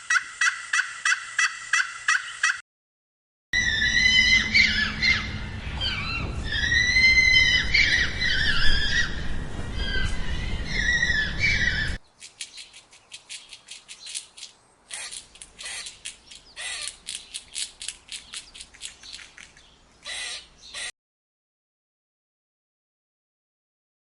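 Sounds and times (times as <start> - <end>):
animal squealing: 3.6 - 12.0, 20.1 - 20.9
rumbling background: 3.6 - 20.2
bird chirping and squawking: 3.6 - 20.9.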